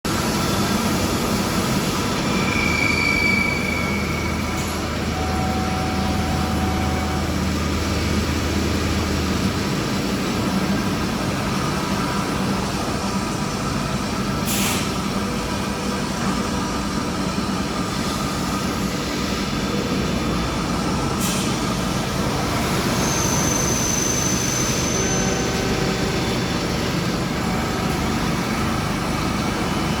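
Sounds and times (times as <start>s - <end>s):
metal-cutting machines running: 0.1s - 30.0s
short machine whines: 1.6s - 9.4s, 19.7s - 30.0s.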